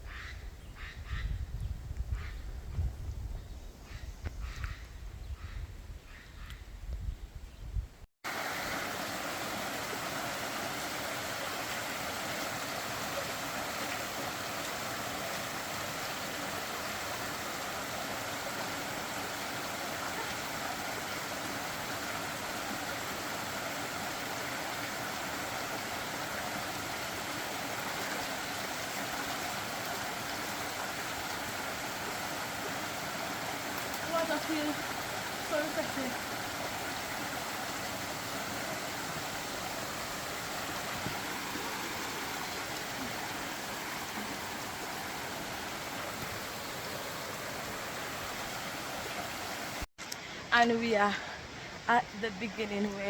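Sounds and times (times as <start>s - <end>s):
stream water rushing: 8.2s - 53.0s.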